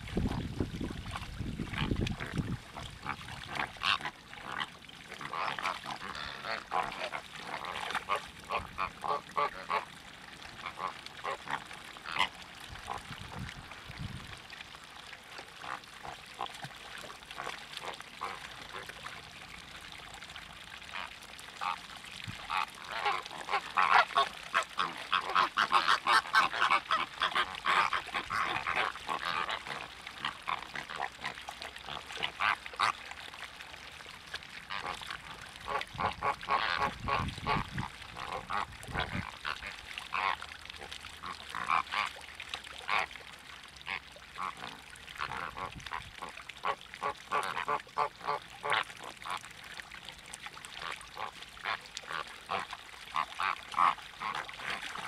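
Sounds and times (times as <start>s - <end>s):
flock of waterbirds calling: 1.1s - 13.2s, 20.9s - 33.2s, 34.6s - 42.2s, 43.8s - 49.5s, 50.7s - 55.0s.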